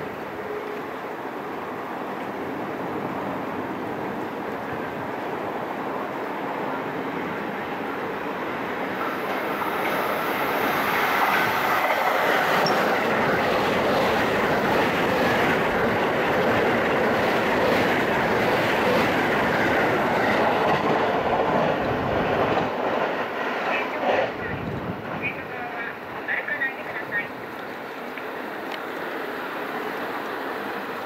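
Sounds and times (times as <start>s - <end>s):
train wheels rolling on rails: 2.9s - 27.3s.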